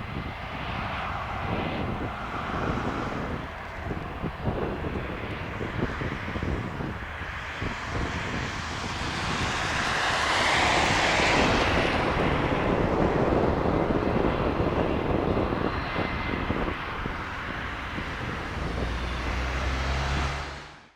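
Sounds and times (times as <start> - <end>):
jet engines running: 0.0 - 20.4
jet engine whine: 0.0 - 20.9.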